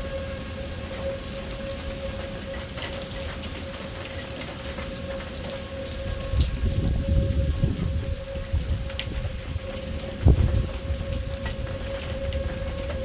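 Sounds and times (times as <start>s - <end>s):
distant tornado siren: 0.0s - 13.0s
heavy rain pattering: 0.0s - 13.0s
thunder rumble: 5.9s - 13.0s.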